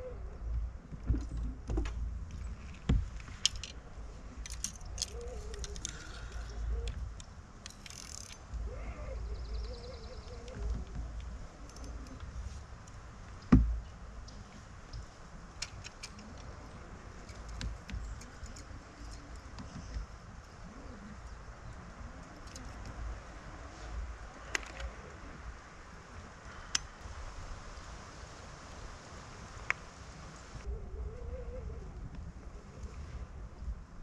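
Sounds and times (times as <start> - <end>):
gear clicking and rattling: 1.2 - 3.8, 4.4 - 8.6, 15.6 - 20.6.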